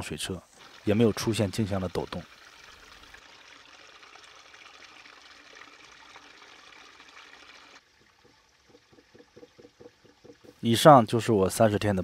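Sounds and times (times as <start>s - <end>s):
creek water trickling: 0.0s - 12.0s
faint fast ticking: 7.8s - 11.0s.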